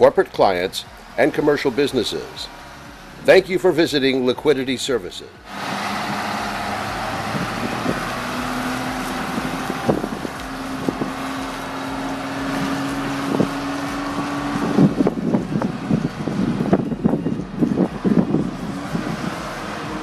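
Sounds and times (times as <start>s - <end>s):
diesel truck engine running: 0.0s - 20.0s
wind buffeting microphone: 5.4s - 20.0s.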